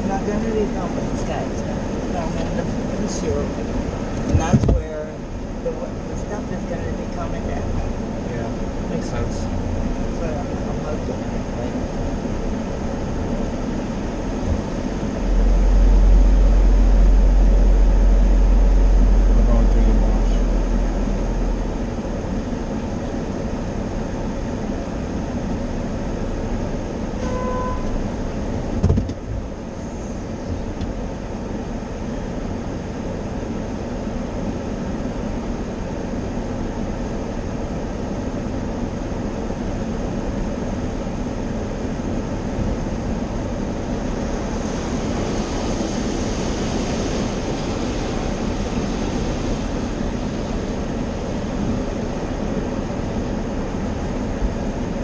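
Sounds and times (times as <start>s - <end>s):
short beep: 27.2s - 28.0s
thump: 28.8s - 29.2s
car wash water spray: 41.5s - 54.9s.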